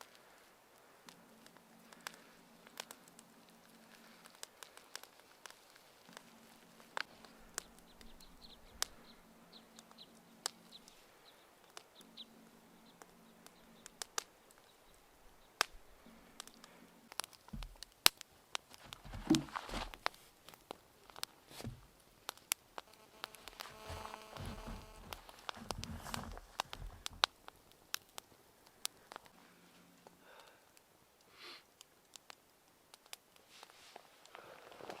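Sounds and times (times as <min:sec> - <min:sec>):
wood fire crackling and popping: 0:00.0 - 0:35.0
rustling and thuds: 0:17.5 - 0:17.8, 0:18.7 - 0:20.2, 0:21.5 - 0:22.0, 0:22.9 - 0:27.4.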